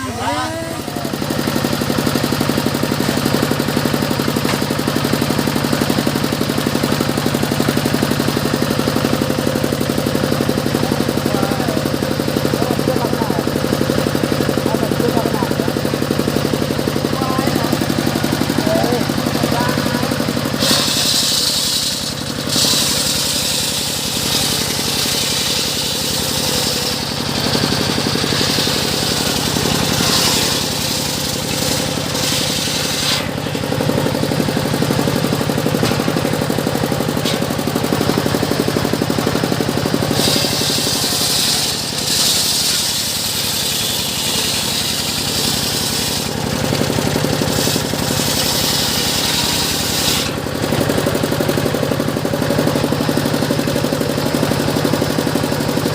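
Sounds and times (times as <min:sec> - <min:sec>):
engine-driven circular saw running: 0:00.0 - 0:55.9
saw blade whining through wood: 0:14.6 - 0:38.4, 0:39.0 - 0:50.6.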